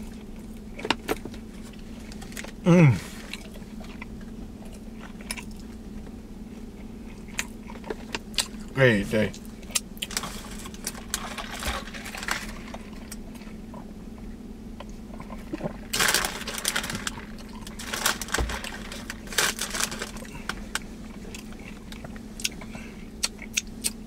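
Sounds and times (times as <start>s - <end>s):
man chewing with lip-smacking: 0.0s - 8.7s, 20.2s - 24.0s.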